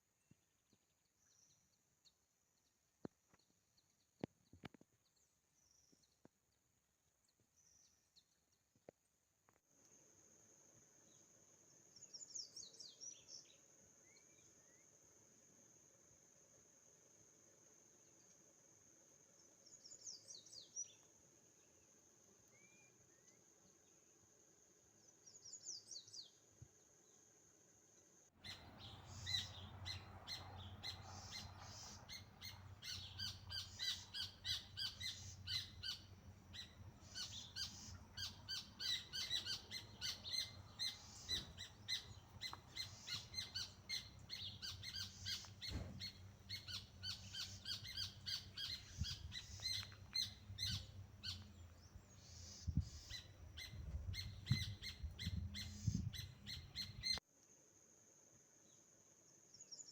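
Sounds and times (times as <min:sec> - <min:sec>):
chorus of birds chirping: 0:28.4 - 0:57.2
falling bird calls: 0:28.4 - 0:57.2.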